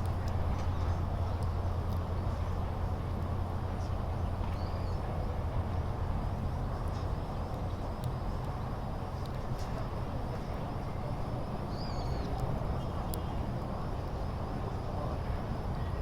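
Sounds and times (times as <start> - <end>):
low fire rumble: 0.0 - 16.0.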